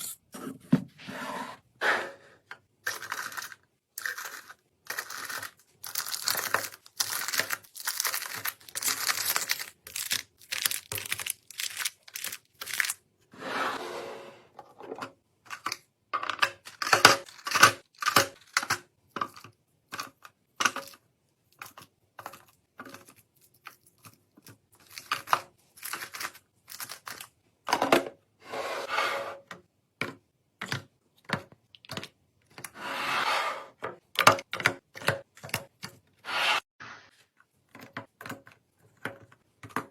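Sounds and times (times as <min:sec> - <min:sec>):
packaging crinkling: 0:04.9 - 0:13.0.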